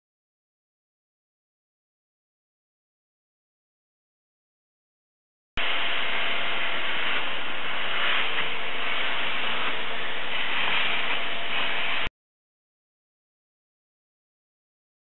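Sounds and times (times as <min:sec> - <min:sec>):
faint hum: 0:05.6 - 0:12.1
steady hissing noise: 0:05.6 - 0:12.1.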